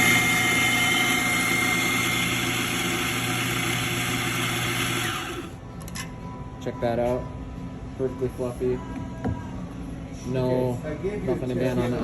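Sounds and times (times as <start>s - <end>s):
coffee grinder grinding: 0.0s - 5.5s.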